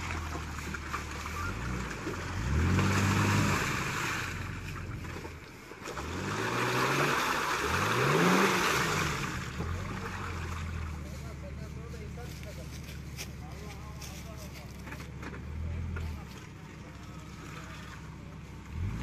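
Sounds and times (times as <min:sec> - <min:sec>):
engine revving: 0:00.0 - 0:11.2, 0:15.4 - 0:19.0.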